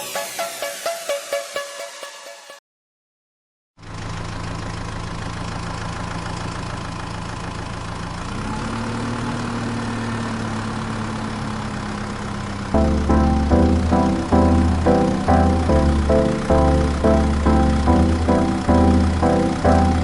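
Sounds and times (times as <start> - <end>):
engine idling: 3.8 - 8.4, 10.2 - 20.0.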